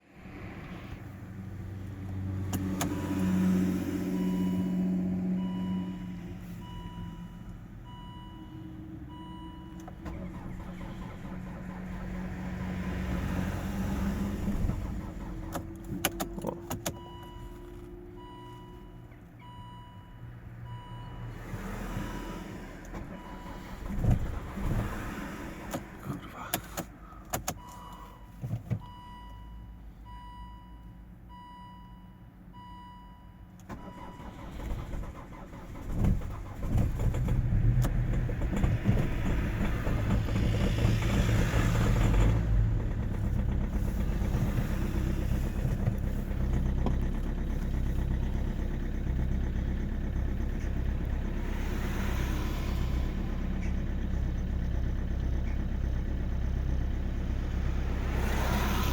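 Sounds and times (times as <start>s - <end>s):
diesel engine idling: 1.2s - 16.0s, 33.7s - 58.9s.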